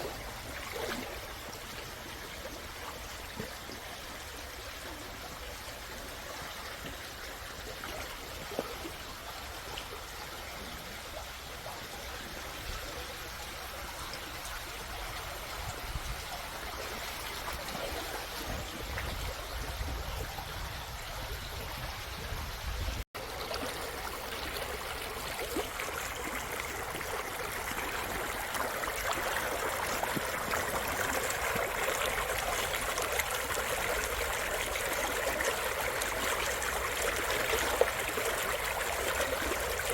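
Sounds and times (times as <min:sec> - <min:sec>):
stream rushing over rocks: 0:23.2 - 0:39.9.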